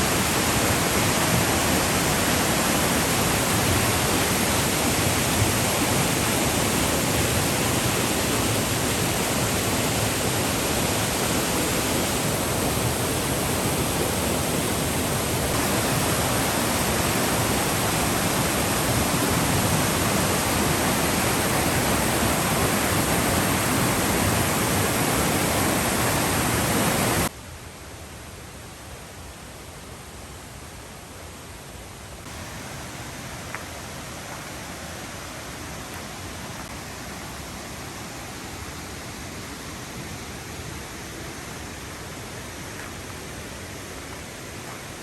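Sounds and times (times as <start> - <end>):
rushing flowing water: 0.0 - 27.3, 32.2 - 45.0.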